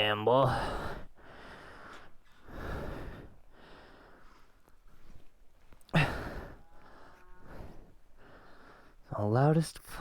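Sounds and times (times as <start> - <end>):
man breathing hard: 0.5 - 5.1, 5.9 - 9.0.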